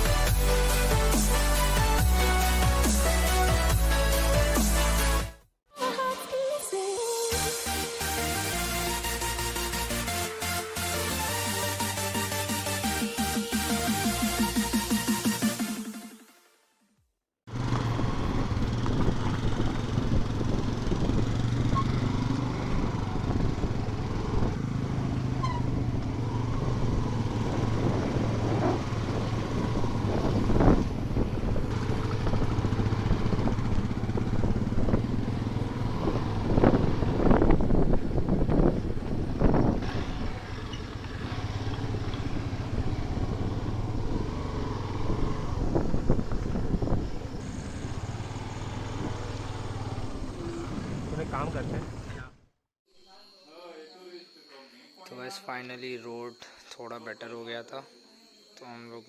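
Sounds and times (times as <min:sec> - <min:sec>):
road noise rushing: 0:17.5 - 0:52.4
motorcycle engine running: 0:17.5 - 0:52.5.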